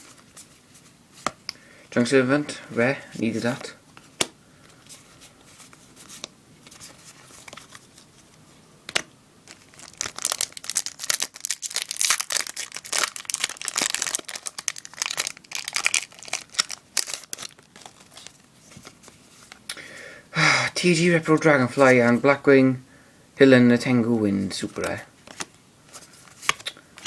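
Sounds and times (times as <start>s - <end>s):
foil wrapper tearing and crinkling: 9.5s - 18.4s.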